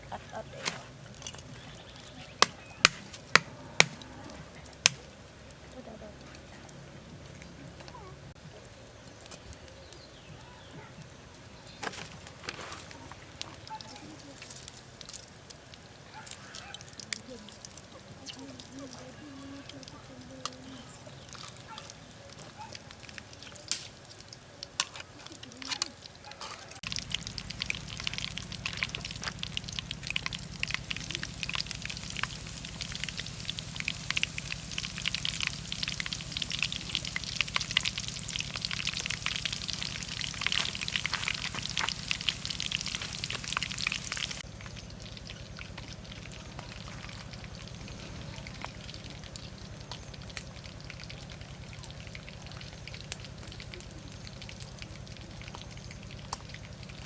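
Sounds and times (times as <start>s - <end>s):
fish frying in hot oil: 13.2s - 57.0s
steady low hum: 26.8s - 57.0s.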